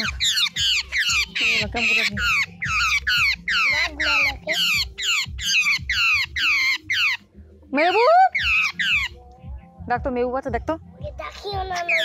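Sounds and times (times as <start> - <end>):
bird distress shrieks: 0.0 - 9.2, 11.8 - 12.0.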